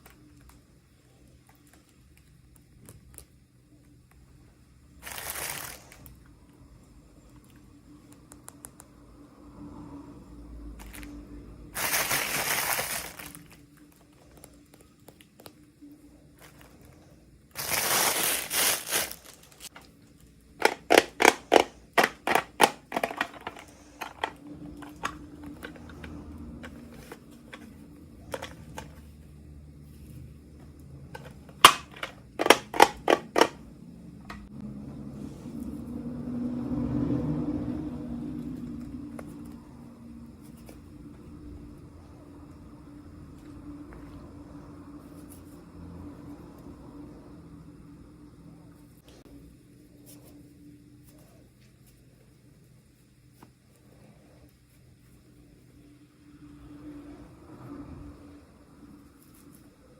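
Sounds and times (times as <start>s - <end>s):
plastic packaging crinkling: 5.0s - 6.1s, 11.8s - 15.6s, 17.5s - 19.9s.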